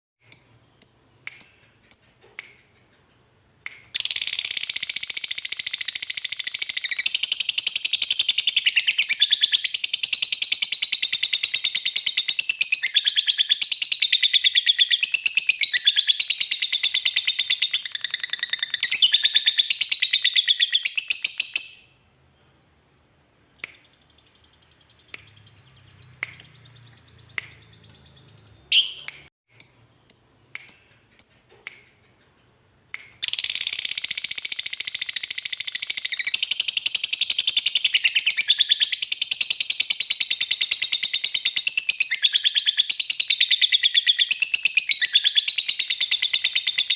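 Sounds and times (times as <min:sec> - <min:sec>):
short bird chirps: 0:03.7 - 0:32.0
lovebird rapid chattering trill: 0:03.8 - 0:14.1, 0:33.2 - 0:39.8.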